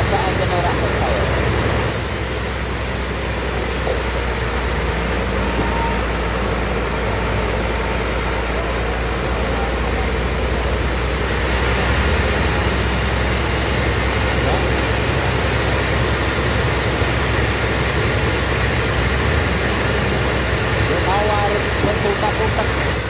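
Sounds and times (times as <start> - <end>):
sawmill machinery humming: 0.0 - 23.0
high hiss: 1.8 - 10.5, 20.6 - 23.0.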